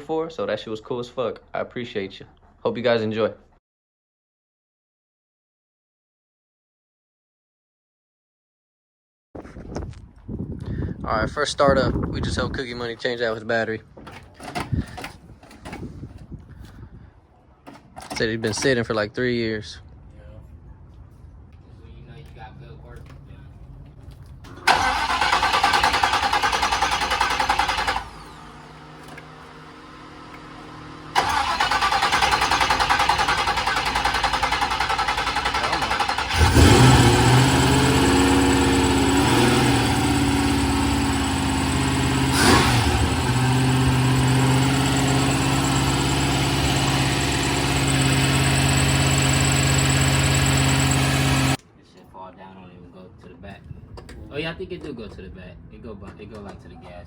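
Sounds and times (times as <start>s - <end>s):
engine cranking: 24.5s - 29.3s, 31.1s - 51.6s
engine idling: 24.5s - 51.6s.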